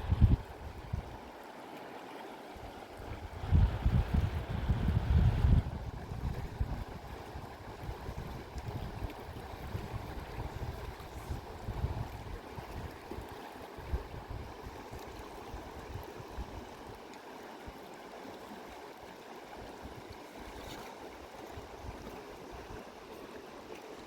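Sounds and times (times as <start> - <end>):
wind buffeting microphone: 0.0 - 1.2, 3.0 - 13.2.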